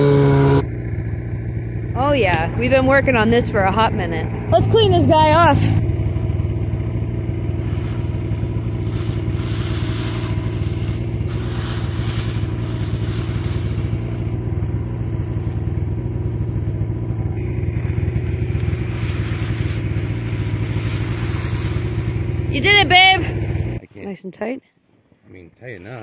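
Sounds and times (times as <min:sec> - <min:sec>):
engine idling: 0:00.0 - 0:26.0
scraping and brushing: 0:07.5 - 0:17.1, 0:17.8 - 0:23.1.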